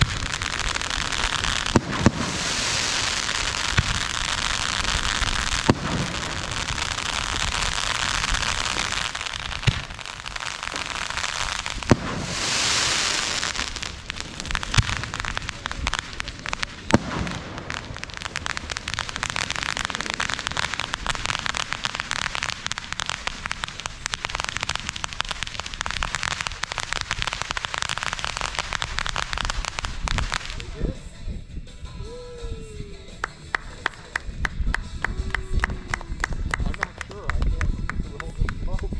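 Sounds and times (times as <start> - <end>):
fireworks bangs: 0.0 - 30.8
fireworks hissing: 0.0 - 36.5
fireworks crackling: 0.0 - 38.9.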